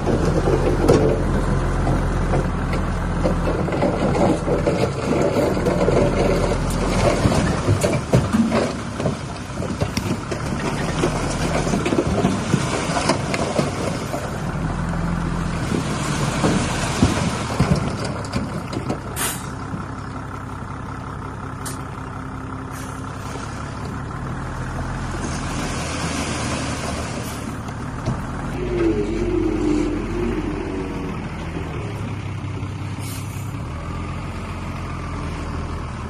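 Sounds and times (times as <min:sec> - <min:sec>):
heavy machinery engines running: 0:00.0 - 0:36.0
metal clanks and knocks: 0:15.7 - 0:19.1
short air hisses: 0:19.2 - 0:19.5, 0:33.0 - 0:33.5.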